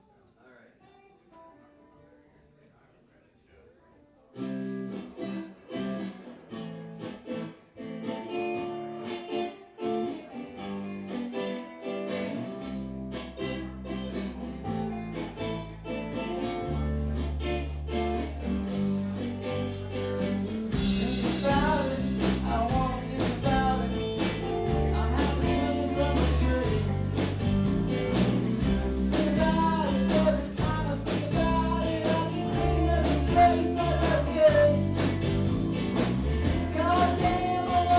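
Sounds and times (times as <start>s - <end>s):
electric guitar: 4.3s - 37.9s
bass guitar: 4.4s - 37.9s
drums: 12.6s - 37.9s.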